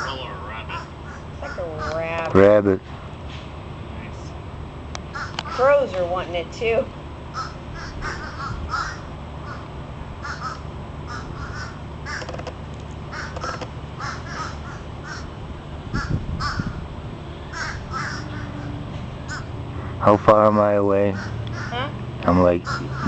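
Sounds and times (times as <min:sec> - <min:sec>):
crows cawing: 0:00.7 - 0:02.0, 0:05.1 - 0:05.8, 0:07.3 - 0:12.4, 0:13.1 - 0:16.8, 0:17.5 - 0:20.2, 0:21.1 - 0:21.9, 0:22.6 - 0:23.0.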